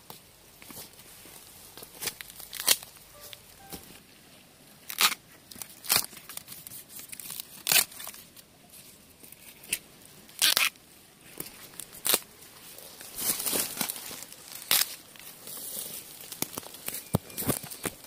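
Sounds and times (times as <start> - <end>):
bamboo shoots snapping: 2.0 - 3.0, 13.3 - 15.0, 16.2 - 18.0
leaves and stalks rustling: 11.2 - 18.0.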